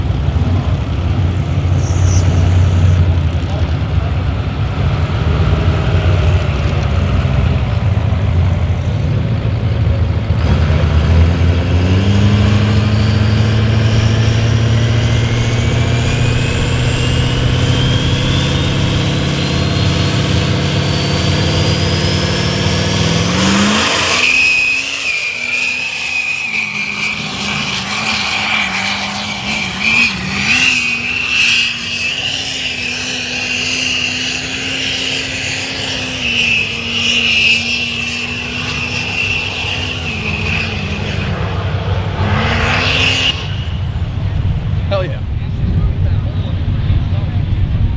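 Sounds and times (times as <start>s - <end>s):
diesel engine revving: 0.0s - 47.9s
turbo whistle: 1.7s - 3.1s, 11.8s - 34.3s, 35.5s - 41.4s
sudden loud rush: 10.6s - 26.4s.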